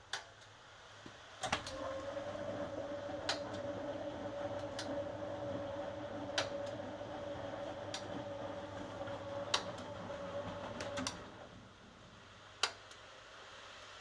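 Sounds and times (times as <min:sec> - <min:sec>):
washing machine hum: 0:01.4 - 0:12.5.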